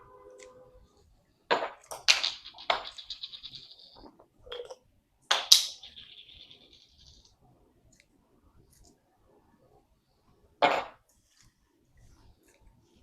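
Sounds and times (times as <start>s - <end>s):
kitchen items knocking and clattering: 1.5s - 7.1s.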